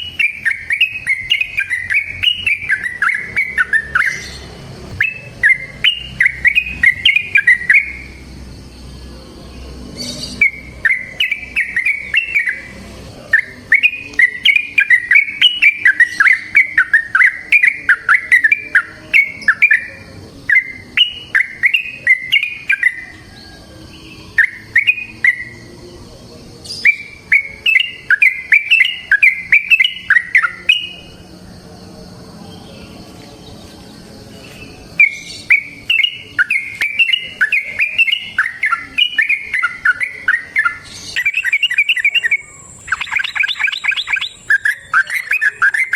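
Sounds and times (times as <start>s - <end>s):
bird bubbly chirping song: 0.0s - 8.2s, 10.2s - 23.2s, 35.0s - 45.9s.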